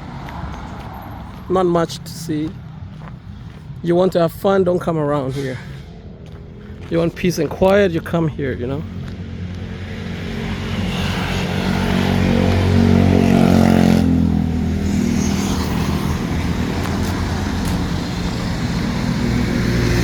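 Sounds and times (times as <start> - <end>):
street traffic: 0.0 - 20.0
vehicle engine running: 6.2 - 20.0.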